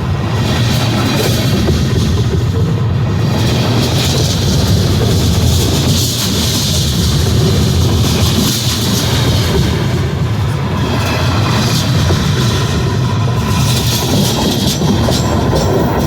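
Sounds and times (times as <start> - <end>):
freight train cars rumbling past: 0.0 - 16.0.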